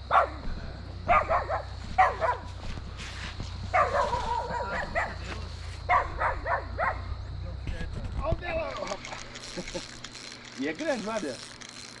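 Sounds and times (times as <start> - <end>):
dog barking: 0.1 - 0.5, 1.1 - 2.6, 3.7 - 5.3, 5.9 - 7.2
dog drawn-out call: 3.7 - 5.2.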